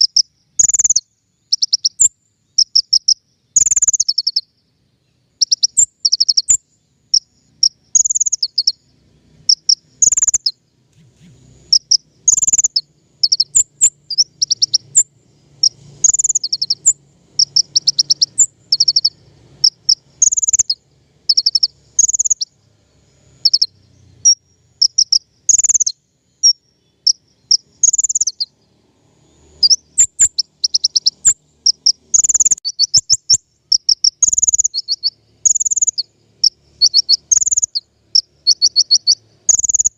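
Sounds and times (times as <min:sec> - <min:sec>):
sunbird chirping: 0:00.0 - 0:39.9.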